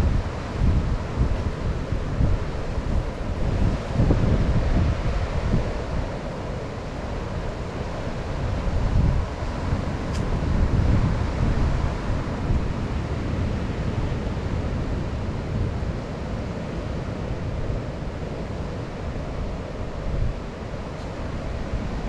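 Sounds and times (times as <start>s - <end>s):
wind buffeting microphone: 0.0s - 6.2s, 7.1s - 13.8s.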